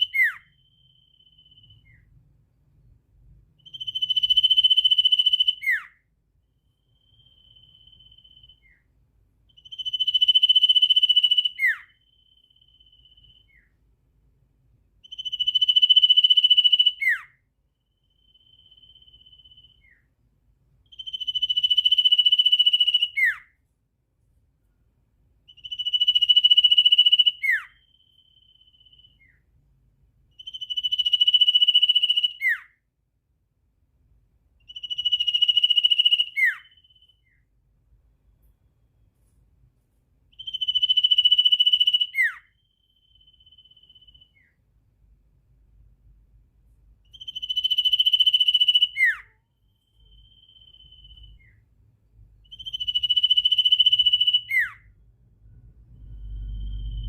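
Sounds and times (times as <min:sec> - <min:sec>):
bird whistled call: 0:00.0 - 0:02.1, 0:03.6 - 0:06.0, 0:09.6 - 0:13.8, 0:15.1 - 0:17.4, 0:18.2 - 0:20.1, 0:21.0 - 0:23.5, 0:25.5 - 0:29.4, 0:30.4 - 0:32.8, 0:34.7 - 0:37.4, 0:40.4 - 0:44.6, 0:47.1 - 0:49.4, 0:50.0 - 0:51.6, 0:52.5 - 0:54.9
faint short bird whistle: 0:00.0 - 0:02.1, 0:30.4 - 0:32.8, 0:34.7 - 0:37.4.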